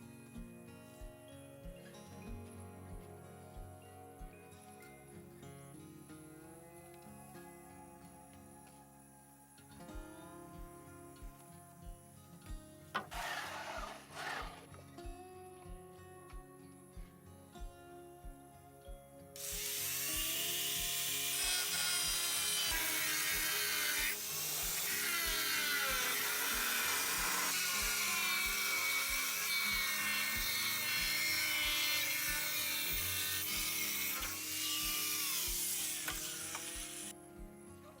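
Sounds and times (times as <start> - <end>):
background music with steady beat: 0.0 - 38.0
chainsaw cutting wood: 12.9 - 14.9, 19.4 - 37.2.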